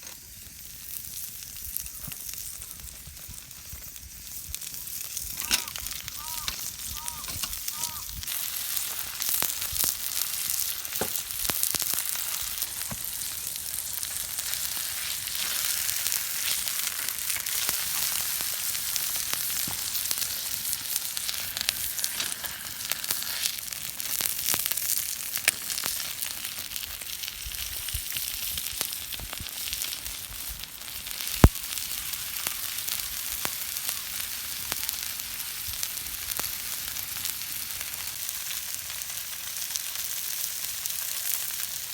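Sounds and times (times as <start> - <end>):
food sizzling in a pan: 0.0 - 41.9.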